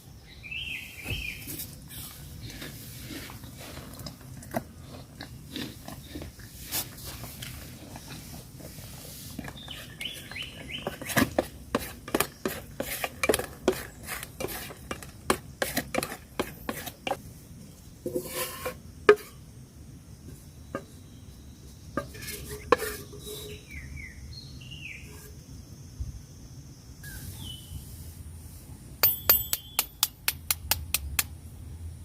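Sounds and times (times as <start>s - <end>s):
bird chirps: 0.2s - 2.1s, 9.5s - 11.2s, 20.6s - 25.5s, 27.0s - 28.0s, 29.1s - 30.1s.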